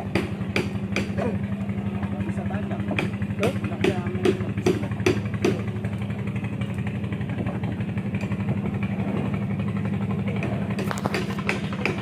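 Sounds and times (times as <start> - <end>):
sharp knocks: 0.0 - 1.3, 2.9 - 5.7, 10.4 - 12.0
small engine running: 0.0 - 12.0.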